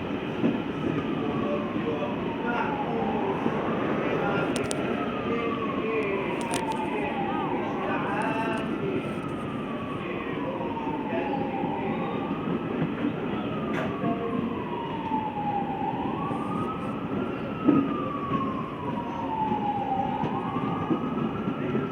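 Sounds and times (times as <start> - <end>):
siren wailing: 0.0 - 21.9
train rumbling: 0.0 - 21.9.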